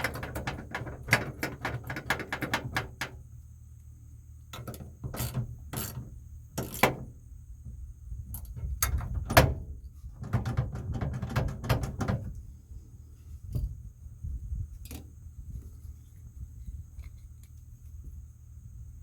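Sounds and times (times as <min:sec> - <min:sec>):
metal rattles: 0:00.0 - 0:03.2, 0:08.3 - 0:12.4.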